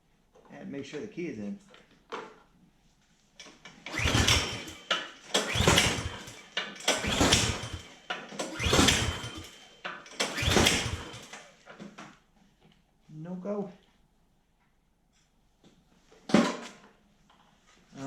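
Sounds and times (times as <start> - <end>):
snowblower engine turning over: 3.4 - 11.9.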